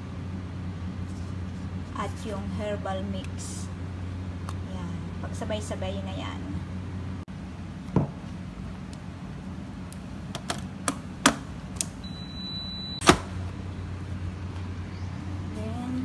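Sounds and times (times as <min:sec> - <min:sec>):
high beep: 0:12.0 - 0:13.0.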